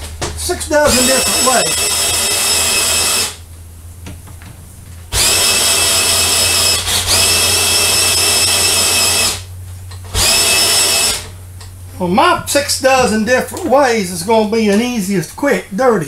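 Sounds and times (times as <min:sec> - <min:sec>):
steady low hum: 0:00.0 - 0:16.0
electric drill whining: 0:00.8 - 0:03.4, 0:05.1 - 0:11.4.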